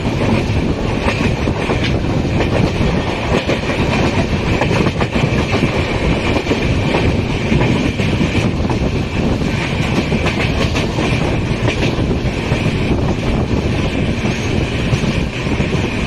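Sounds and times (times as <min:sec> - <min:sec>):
train coach rumbling: 0:00.0 - 0:16.0
wheels clicking over rails: 0:00.0 - 0:16.0.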